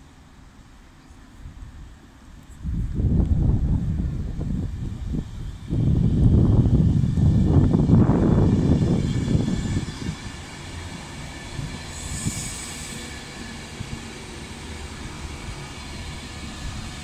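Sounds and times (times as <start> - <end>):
electric train passing: 0.0 - 17.0
brief high hiss: 11.9 - 13.4.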